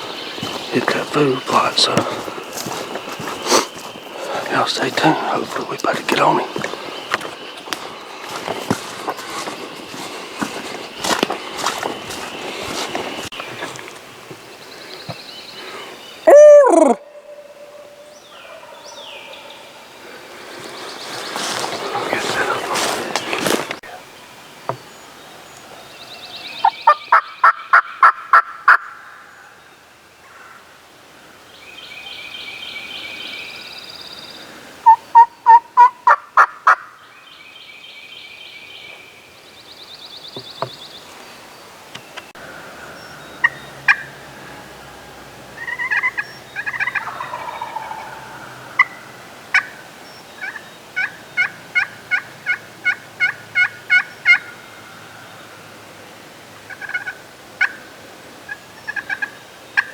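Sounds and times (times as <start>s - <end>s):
soft raspy turkey calls: 0.0s - 24.1s, 34.8s - 37.0s, 42.4s - 54.6s, 56.7s - 57.9s, 58.5s - 59.9s
turkey yelping: 16.3s - 18.8s, 45.6s - 49.8s.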